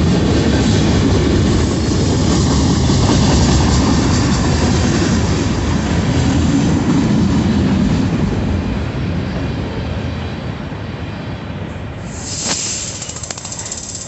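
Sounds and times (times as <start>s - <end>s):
freight train rumbling and rattling: 0.0s - 14.0s.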